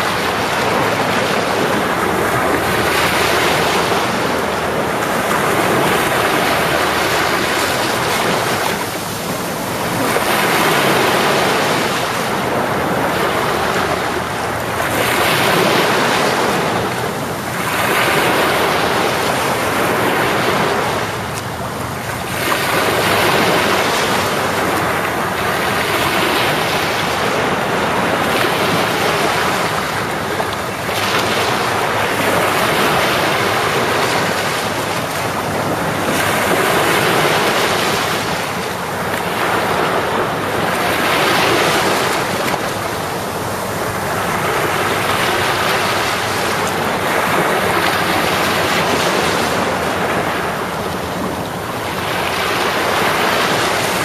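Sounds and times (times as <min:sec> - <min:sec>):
sea waves washing onto shore: 0:00.0 - 0:54.0.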